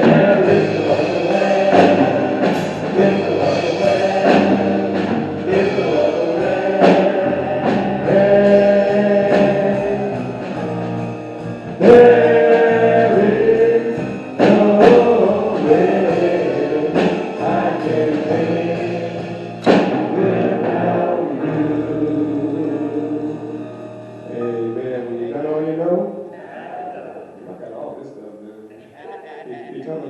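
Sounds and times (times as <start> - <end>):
choir singing: 0.0 - 10.6, 11.7 - 23.7
instrumental accompaniment: 0.0 - 27.9.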